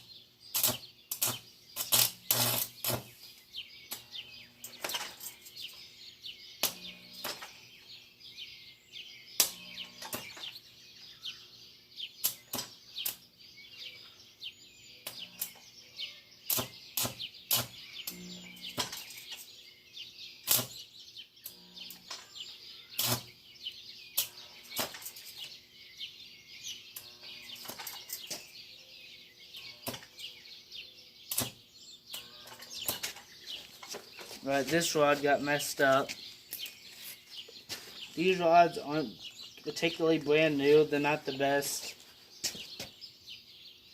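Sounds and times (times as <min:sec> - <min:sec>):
arc welder crackling and popping: 0:00.0 - 0:03.2, 0:03.9 - 0:04.9, 0:06.6 - 0:07.5, 0:09.4 - 0:10.6, 0:12.2 - 0:13.3, 0:15.0 - 0:15.6, 0:16.4 - 0:19.3, 0:20.4 - 0:20.8, 0:23.0 - 0:23.4, 0:24.2 - 0:25.4, 0:29.8 - 0:30.2, 0:31.3 - 0:33.9.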